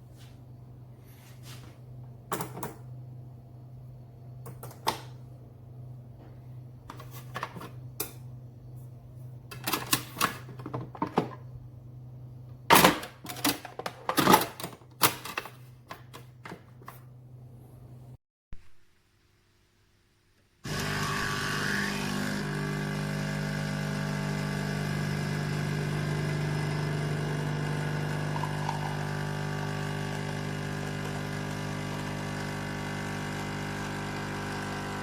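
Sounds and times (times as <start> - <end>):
low machine hum: 0.1 - 12.7.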